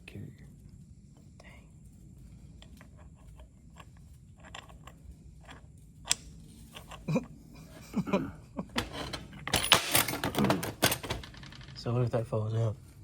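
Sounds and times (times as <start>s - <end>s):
metal on metal clatter: 8.8s - 11.9s
metal parts clicking and clinking: 8.8s - 12.0s.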